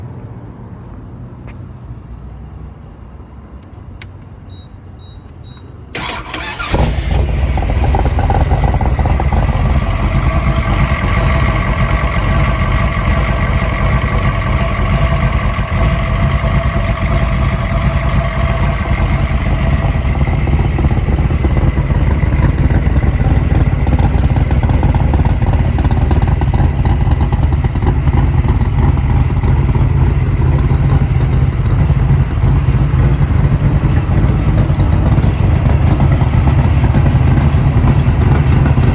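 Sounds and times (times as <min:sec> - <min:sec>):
short beeps: 0:04.5 - 0:05.8
starter cranking: 0:06.0 - 0:28.0
loud car engine running: 0:06.0 - 0:38.9.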